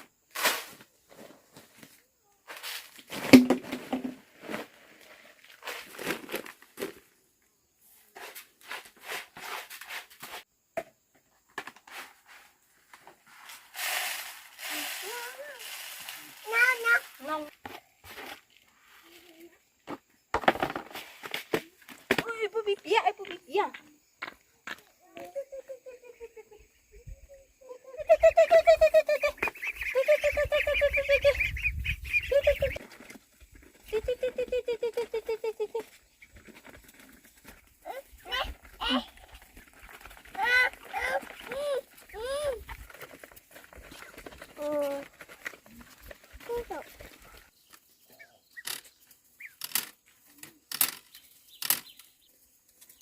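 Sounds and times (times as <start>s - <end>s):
rustling and crinkling: 0.3s - 7.2s, 11.4s - 23.3s, 32.5s - 53.0s
ducks quacking: 28.4s - 32.8s.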